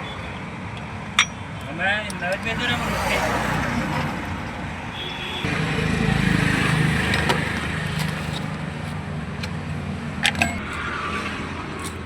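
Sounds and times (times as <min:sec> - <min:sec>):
vehicle engine running: 0:05.5 - 0:12.0.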